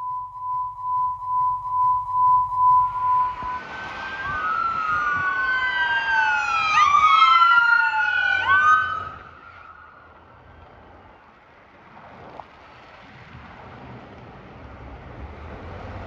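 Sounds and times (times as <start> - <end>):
pulsing high beep tone: 0.0 - 3.8
emergency sirens wailing: 0.0 - 10.9
traffic noise: 0.0 - 16.0.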